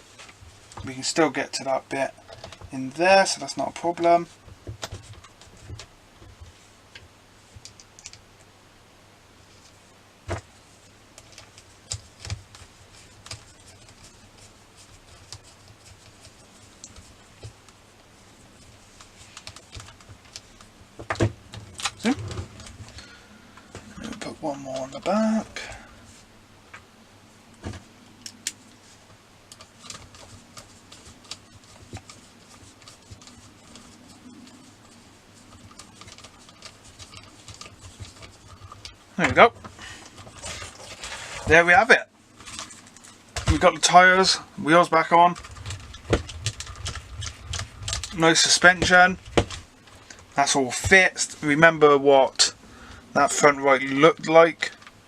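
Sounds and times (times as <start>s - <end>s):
small clicks and light taps: 7.6s - 8.5s.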